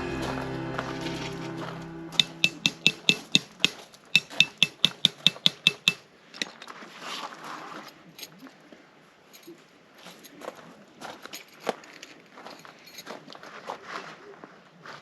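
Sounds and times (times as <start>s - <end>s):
rapid metallic clinks: 2.2s - 6.6s.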